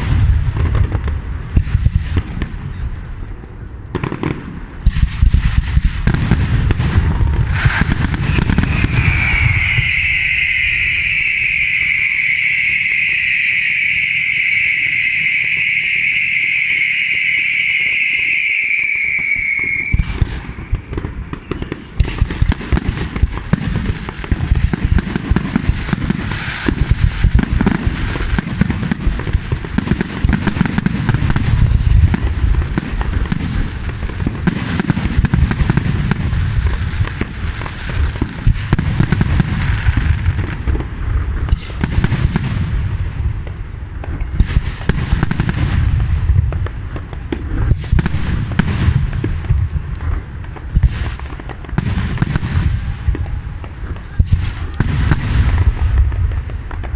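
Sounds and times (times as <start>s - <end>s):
firework bangs and crackling: 0.0s - 56.9s
firework hissing whistle: 5.0s - 33.8s.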